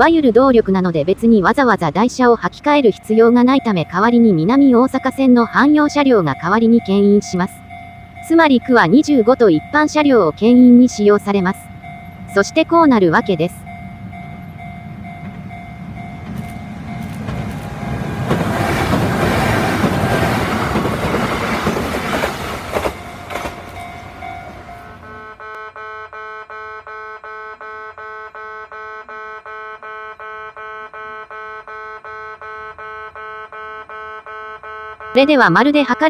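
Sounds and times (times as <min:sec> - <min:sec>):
level crossing alarm ringing: 0:00.0 - 0:36.0
train passing with rail clacks: 0:00.6 - 0:25.4.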